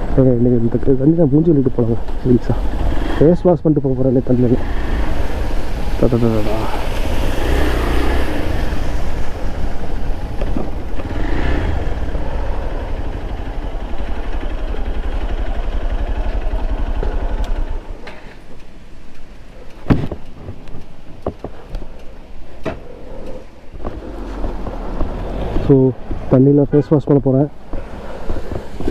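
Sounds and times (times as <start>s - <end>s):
wind rushing over microphone: 1.5s - 16.9s, 19.6s - 28.9s
motorcycle engine running: 4.1s - 18.0s, 23.7s - 26.4s
sharp knocks and clicks: 17.0s - 26.3s.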